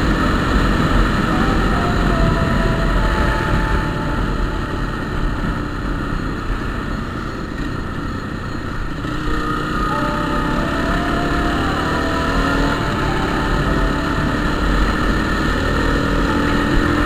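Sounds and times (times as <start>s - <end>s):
heavy wind noise: 0.0s - 9.4s
road noise: 0.0s - 17.0s
vehicle engine running: 0.0s - 17.0s.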